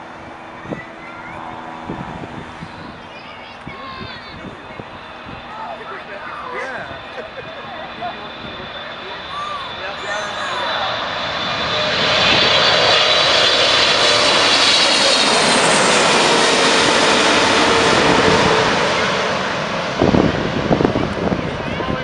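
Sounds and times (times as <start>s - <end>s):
jet roar with fan whine: 0.0s - 22.0s.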